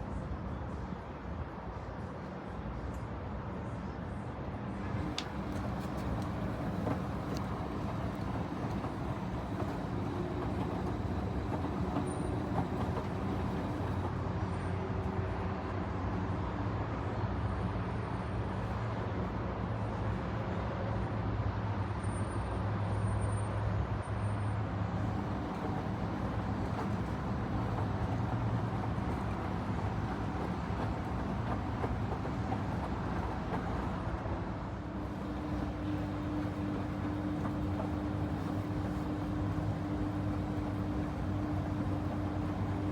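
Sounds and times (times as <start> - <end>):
washing machine motor hum: 4.9 - 14.1, 25.0 - 34.2, 34.8 - 42.9.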